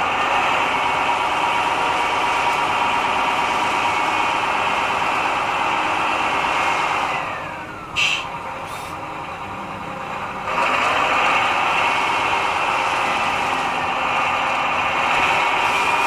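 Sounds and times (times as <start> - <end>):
model truck motor whining: 0.0 - 16.0.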